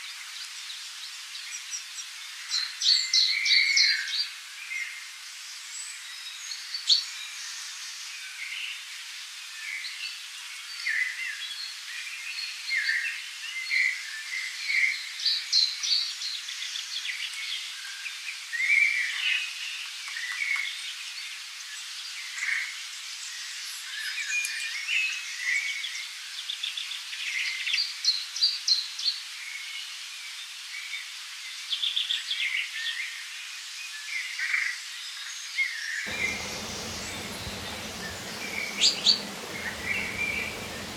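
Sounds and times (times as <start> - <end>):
river water rushing: 36.1 - 40.9
songbirds chirping: 36.1 - 40.9.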